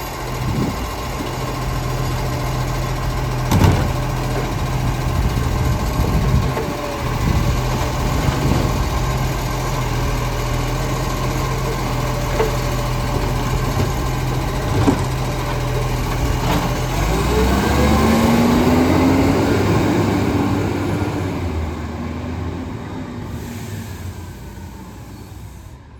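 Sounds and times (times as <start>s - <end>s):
diesel engine idling and revving: 0.0s - 25.9s
sharp knocks: 3.5s - 4.1s.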